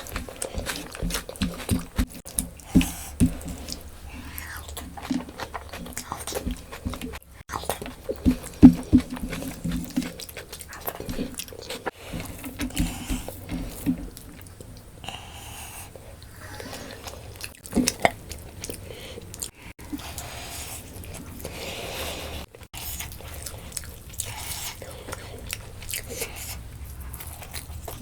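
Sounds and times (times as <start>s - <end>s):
person chewing food: 0.0s - 28.0s.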